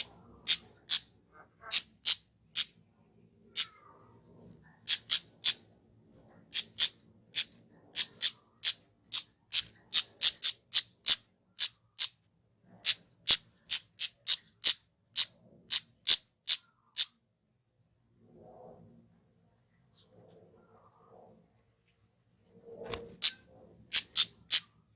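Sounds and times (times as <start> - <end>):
bird calling high tsit notes: 0.0 - 1.0, 23.2 - 24.7.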